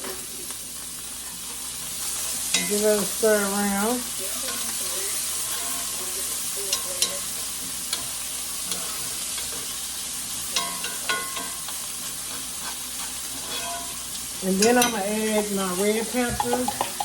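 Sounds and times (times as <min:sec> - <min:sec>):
onions sizzling in frying pan: 0:00.0 - 0:17.0
utensil knocking against pan: 0:16.1 - 0:17.0.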